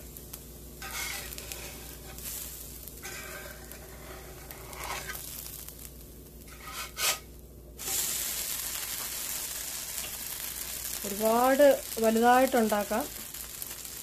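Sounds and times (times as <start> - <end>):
batter sizzling on a pan: 0.0 - 14.0
spatula knocking and scraping: 0.8 - 2.2, 3.0 - 5.2, 6.5 - 7.3.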